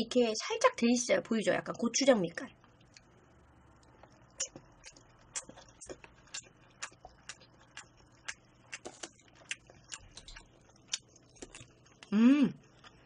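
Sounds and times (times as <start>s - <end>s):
wet chewing mouth sounds: 3.8s - 13.0s.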